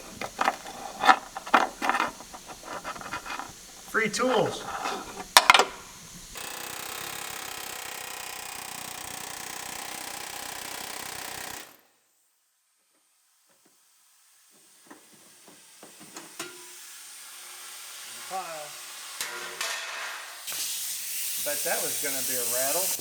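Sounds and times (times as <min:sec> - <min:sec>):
power tool running: 0:00.0 - 0:09.2.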